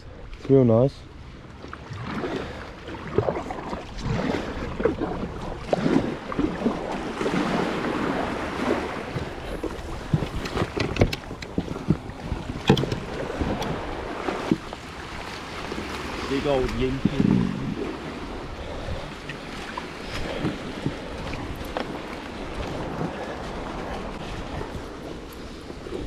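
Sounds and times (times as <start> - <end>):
water sloshing around a kayak: 0.0 - 26.0
wind on microphone: 3.1 - 26.0
knocks against kayak hull: 9.1 - 13.7.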